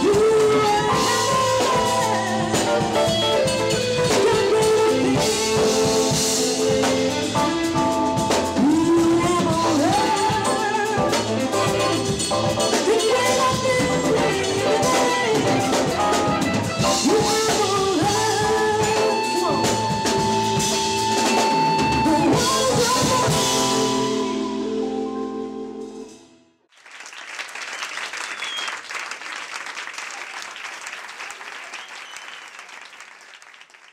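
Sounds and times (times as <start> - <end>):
drum rimshots: 0.0 - 24.0
live jazz band: 0.0 - 26.3.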